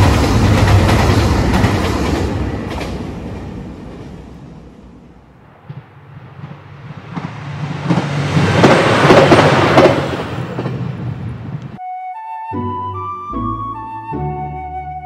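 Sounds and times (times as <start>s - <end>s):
wheels clacking over rail joints: 0.0s - 4.6s, 5.6s - 11.8s
diesel train passing: 0.0s - 11.8s.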